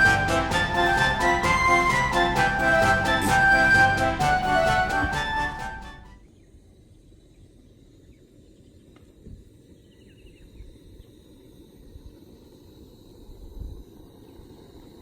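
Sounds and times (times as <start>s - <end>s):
background music: 0.0s - 6.2s.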